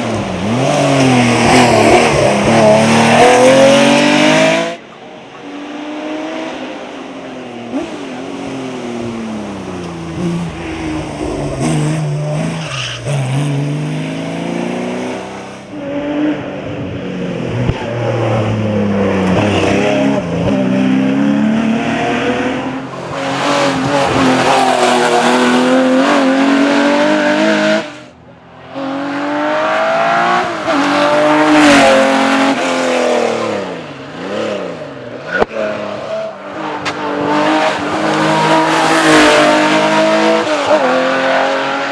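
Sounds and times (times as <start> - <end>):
racing engine revving: 28.7 - 41.9.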